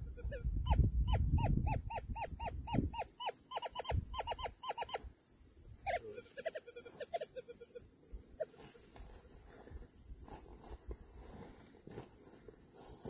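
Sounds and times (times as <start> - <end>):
bird calling nasal notes: 0.0 - 5.1, 5.8 - 8.7.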